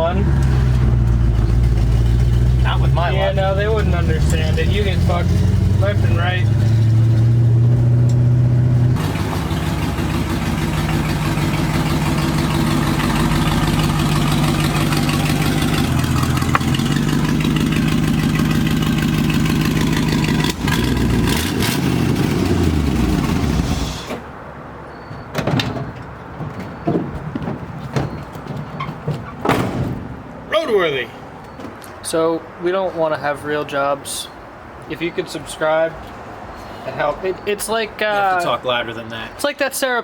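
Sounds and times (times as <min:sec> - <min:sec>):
truck engine running: 0:00.0 - 0:24.2
road and wind noise: 0:00.0 - 0:40.0.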